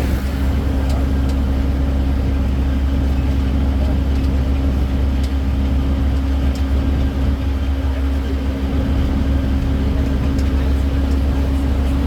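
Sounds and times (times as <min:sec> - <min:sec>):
train engine droning: 0:00.0 - 0:03.9.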